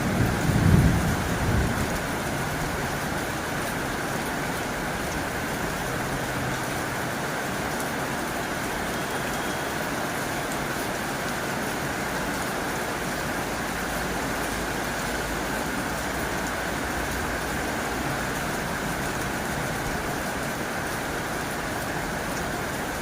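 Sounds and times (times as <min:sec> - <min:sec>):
low rumble of thunder: 0:00.0 - 0:03.3
heavy rain on a tin roof: 0:00.0 - 0:23.0.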